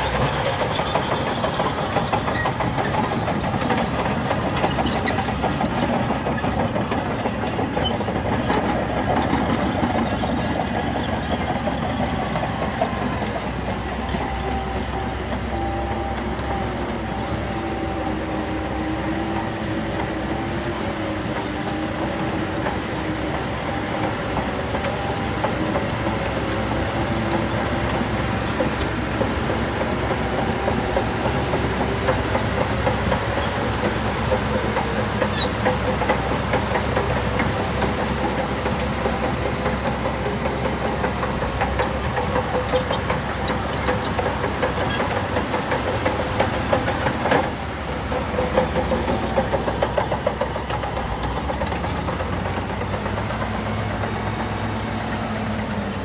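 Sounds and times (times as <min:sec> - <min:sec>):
diesel machinery running: 0:00.0 - 0:56.0
short high squeaks: 0:42.7 - 0:46.9.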